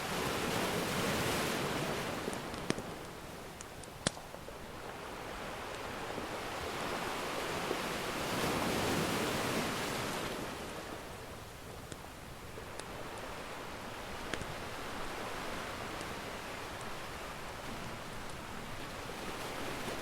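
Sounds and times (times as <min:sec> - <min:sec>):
ocean surf washing in: 0:00.0 - 0:03.0, 0:04.8 - 0:11.5, 0:12.4 - 0:20.0
wood fire popping: 0:02.2 - 0:04.7, 0:11.6 - 0:13.3, 0:14.1 - 0:14.6.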